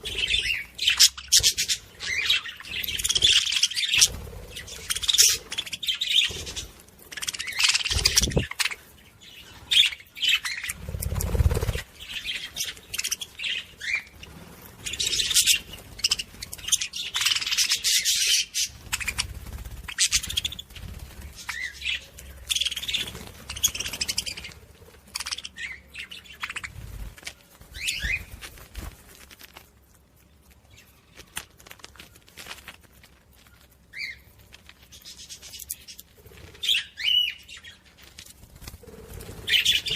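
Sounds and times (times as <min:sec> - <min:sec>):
budgerigars chattering: 0:00.0 - 0:08.8.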